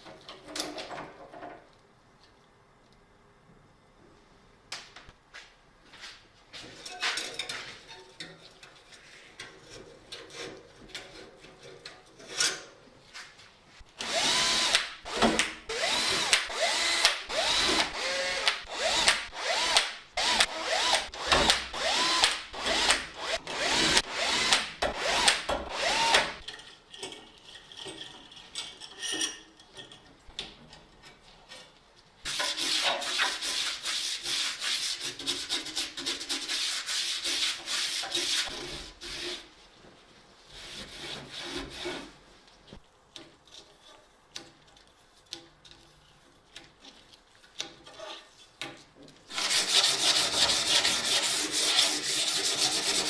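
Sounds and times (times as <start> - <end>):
squeaky hand sanding strokes: 49.3 - 53.0.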